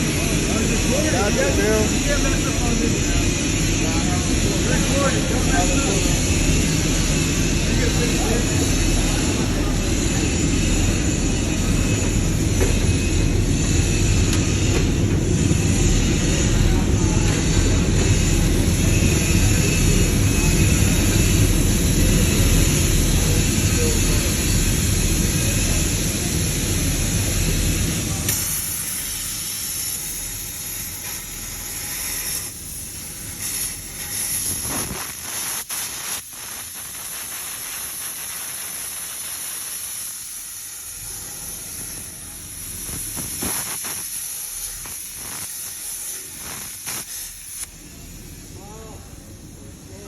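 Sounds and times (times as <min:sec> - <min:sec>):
plasma cutter hissing: 0:00.0 - 0:50.0
crackles and clicks: 0:33.4 - 0:40.5, 0:42.7 - 0:47.7.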